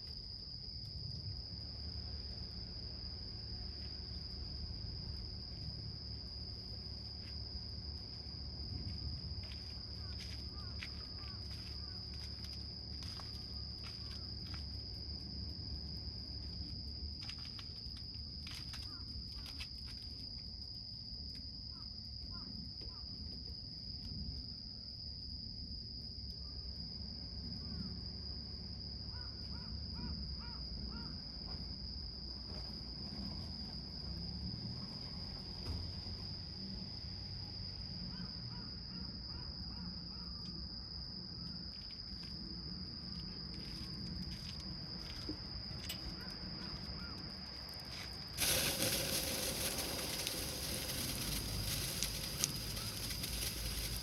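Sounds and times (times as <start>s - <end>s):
insect trill: 0.0s - 54.0s
wood fire crackling: 47.5s - 54.0s.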